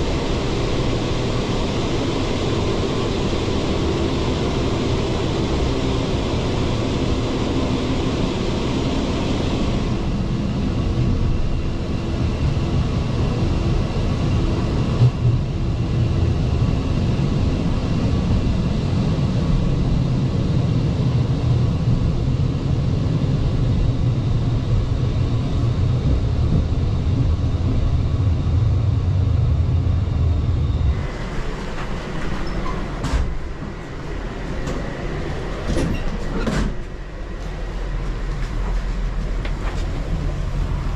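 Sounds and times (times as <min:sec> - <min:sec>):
train rumbling: 0:09.6 - 0:40.9.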